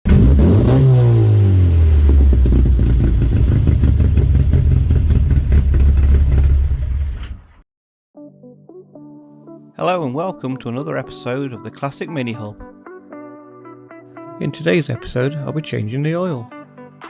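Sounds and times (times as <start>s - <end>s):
car engine revving and running: 0.0s - 7.6s.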